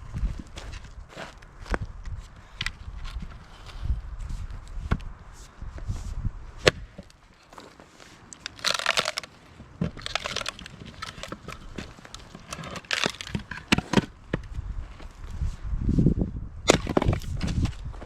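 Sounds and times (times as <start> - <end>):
axe striking firewood: 6.6 - 7.2, 8.4 - 14.4, 16.6 - 17.7
wood cracking and splintering: 6.6 - 14.5, 16.7 - 18.0.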